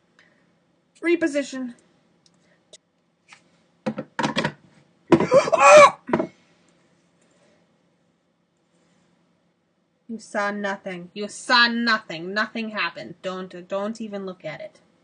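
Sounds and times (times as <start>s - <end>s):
objects clattering on hard surface: 3.8s - 5.4s, 6.1s - 6.4s.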